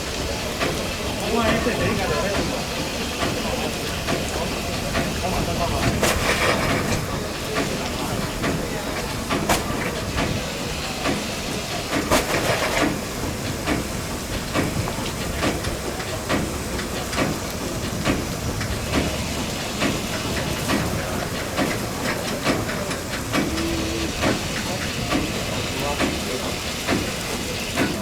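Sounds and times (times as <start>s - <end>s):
steam hissing: 0.0s - 28.0s
steam locomotive knocking: 0.0s - 28.0s.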